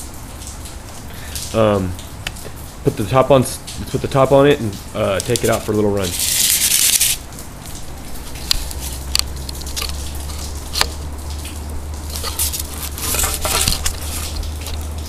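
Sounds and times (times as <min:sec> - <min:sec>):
hands rustling: 0:05.3 - 0:07.2, 0:12.1 - 0:15.0.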